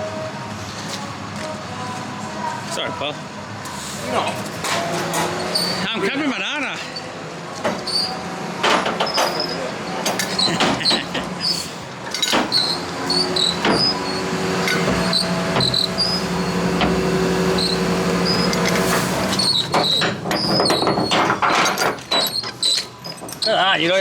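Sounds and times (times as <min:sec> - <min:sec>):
metal knocks and clanks: 0:08.6 - 0:11.4, 0:12.1 - 0:23.6
lorry engine running: 0:09.8 - 0:22.1.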